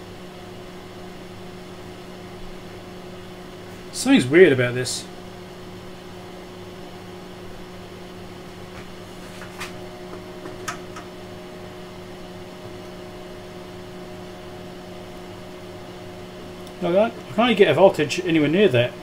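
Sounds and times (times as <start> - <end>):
electrical hum with fan noise: 0.0 - 19.0.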